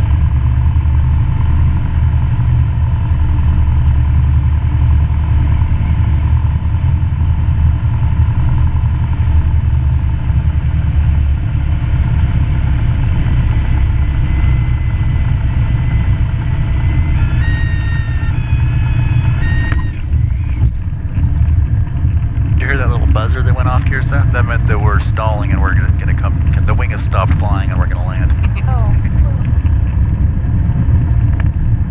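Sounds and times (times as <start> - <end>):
propeller plane engine drone: 0.0 - 31.9
high whistle-like tone: 16.9 - 20.7.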